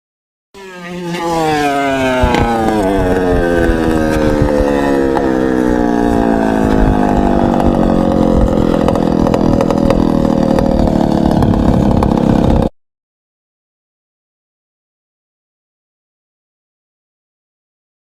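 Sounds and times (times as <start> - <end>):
motorcycle engine running: 0.6 - 12.7.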